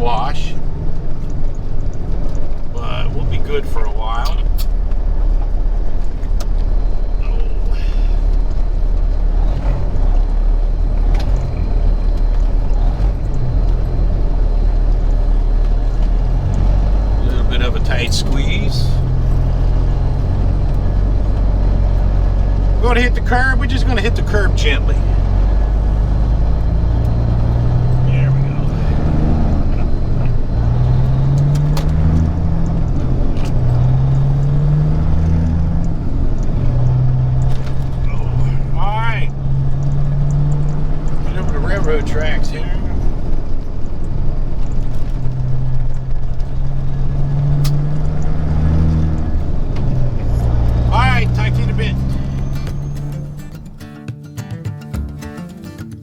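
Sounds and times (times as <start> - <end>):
truck diesel engine droning: 0.0 - 54.0.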